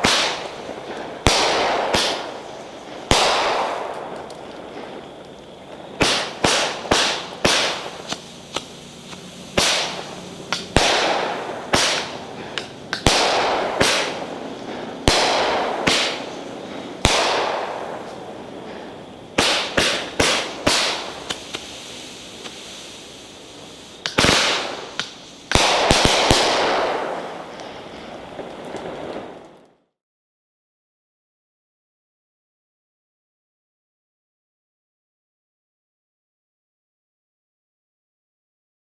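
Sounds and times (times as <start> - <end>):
fireworks bangs: 0.0 - 29.6.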